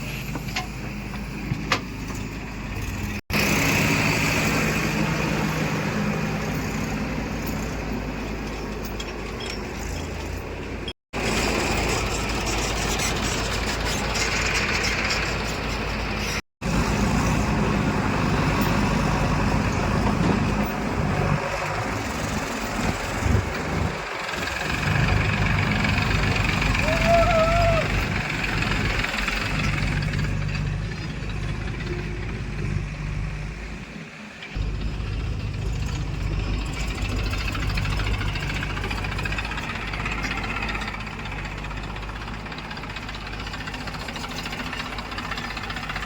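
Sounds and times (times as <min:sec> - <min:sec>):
diesel engines running: 0:00.0 - 0:46.0.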